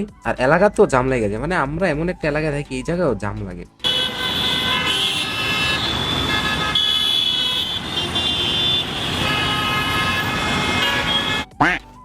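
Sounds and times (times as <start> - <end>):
rumble of engines in traffic: 3.7 - 12.0
vehicle horns honking: 3.8 - 11.8.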